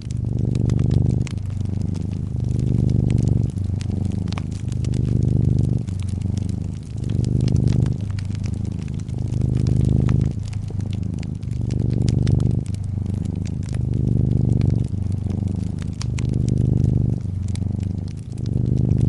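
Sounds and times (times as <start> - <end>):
cat purring: 0.0 - 19.0
wood fire crackling: 0.0 - 19.0.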